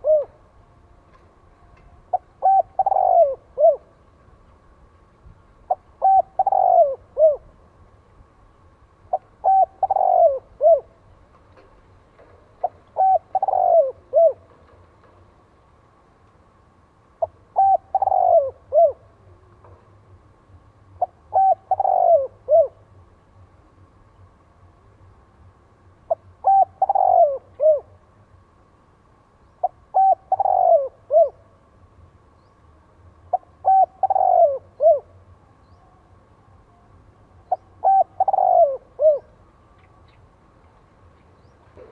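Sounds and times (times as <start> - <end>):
dove cooing: 0.0 - 0.5, 2.1 - 4.0, 5.7 - 7.5, 9.1 - 11.0, 12.6 - 14.7, 17.2 - 19.5, 21.0 - 22.9, 26.1 - 28.0, 29.6 - 31.5, 33.3 - 36.0, 37.4 - 39.4.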